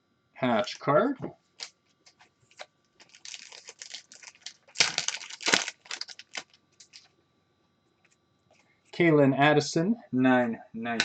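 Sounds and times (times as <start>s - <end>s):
cards being sorted: 1.6s - 7.1s
plastic packaging crinkling: 1.6s - 7.1s.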